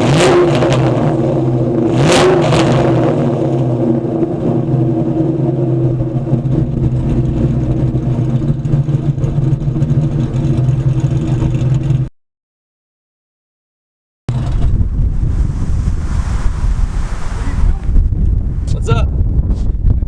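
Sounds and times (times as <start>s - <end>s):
v-eight engine idling choppily: 2.7s - 12.1s.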